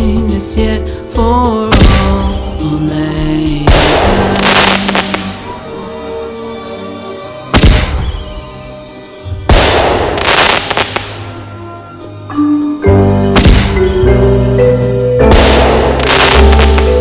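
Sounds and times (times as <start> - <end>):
music: 0.0 - 17.0
fireworks bangs: 3.7 - 5.4, 9.5 - 11.2, 13.4 - 14.5, 15.2 - 17.0
fireworks crackling: 3.7 - 5.4, 9.5 - 11.2, 15.3 - 17.0.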